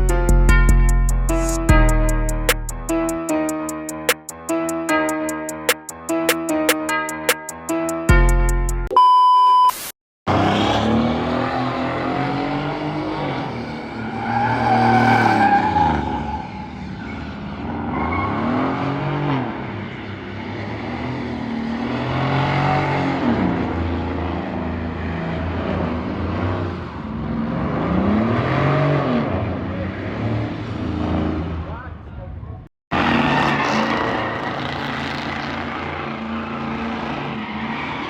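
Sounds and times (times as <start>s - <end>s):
short electronic beep: 8.9s - 10.0s
car engine revving: 10.3s - 19.8s, 32.9s - 37.8s
tyre squeal: 14.0s - 18.6s.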